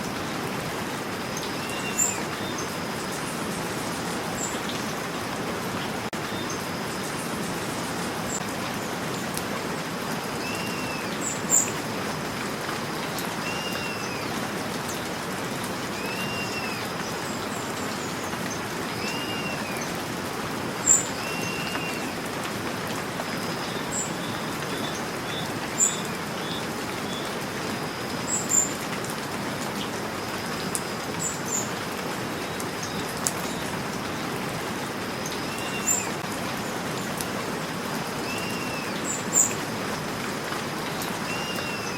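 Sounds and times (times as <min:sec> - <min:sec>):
steady rain falling: 0:00.0 - 0:41.9
bird calling: 0:10.4 - 0:11.7, 0:13.4 - 0:14.3, 0:16.0 - 0:17.0, 0:19.0 - 0:20.0, 0:20.8 - 0:22.3, 0:38.2 - 0:39.6, 0:41.2 - 0:41.9.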